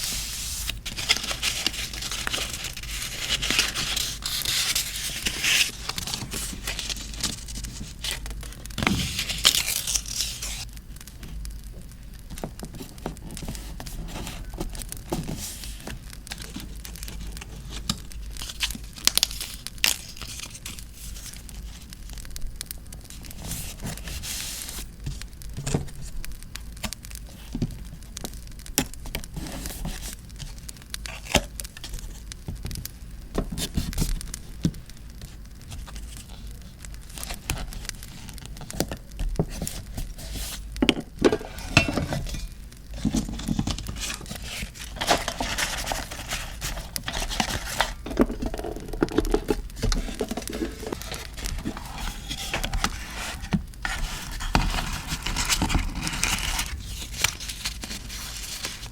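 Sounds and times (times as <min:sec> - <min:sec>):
paper crinkling and tearing: 0:00.0 - 0:10.7, 0:12.8 - 0:22.4, 0:23.0 - 0:28.0, 0:29.0 - 0:32.2, 0:33.4 - 0:58.9
crackling campfire: 0:10.6 - 0:12.4.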